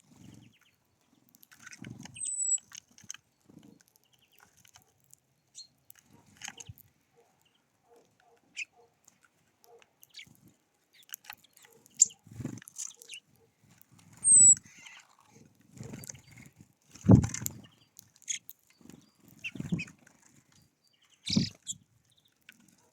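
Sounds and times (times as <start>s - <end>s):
birds pecking seeds: 0.0s - 22.9s
short high bird chirp: 2.2s - 2.6s, 14.2s - 14.6s.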